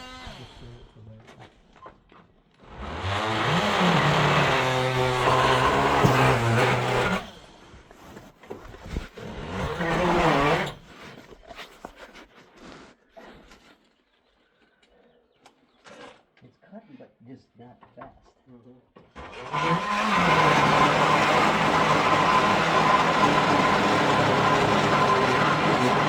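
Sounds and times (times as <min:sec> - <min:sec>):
chainsaw cutting timber: 0:00.0 - 0:01.0, 0:02.6 - 0:11.1, 0:19.1 - 0:26.0.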